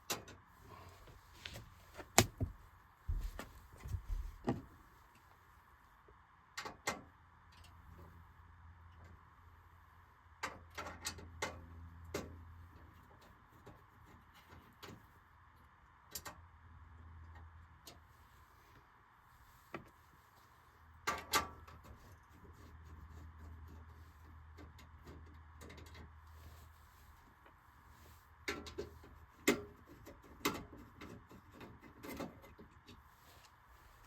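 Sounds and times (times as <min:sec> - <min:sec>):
low steady hum: 0:00.0 - 0:06.5.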